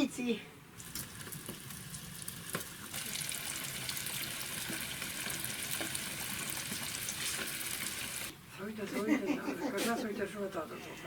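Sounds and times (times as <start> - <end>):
food sizzling in a frying pan: 0.8 - 8.3.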